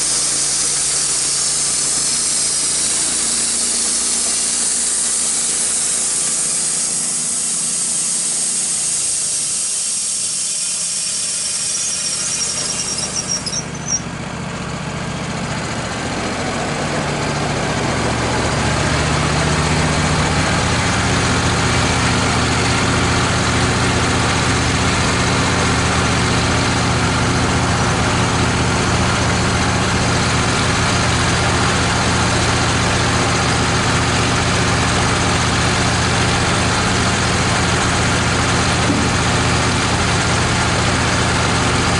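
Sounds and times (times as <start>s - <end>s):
band saw blade cutting wood: 0.0s - 14.1s
sawmill engine running: 0.0s - 41.9s.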